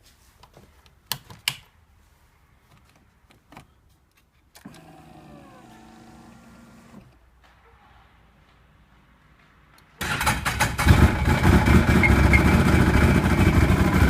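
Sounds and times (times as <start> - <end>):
snowmobile engine turning over: 10.0 - 14.0.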